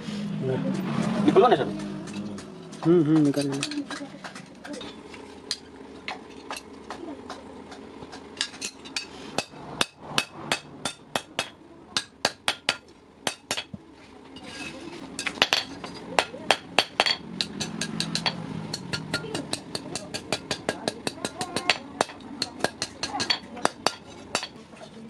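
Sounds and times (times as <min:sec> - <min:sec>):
hammer striking steel on anvil: 0:08.1 - 0:13.8, 0:15.2 - 0:24.6.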